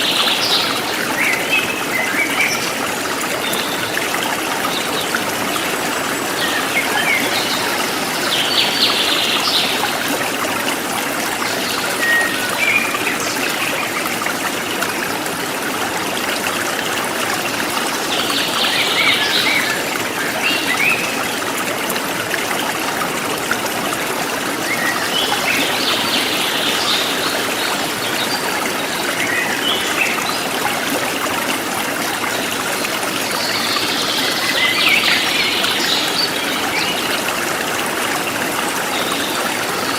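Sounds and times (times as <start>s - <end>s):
forest stream trickling: 0.0s - 39.9s.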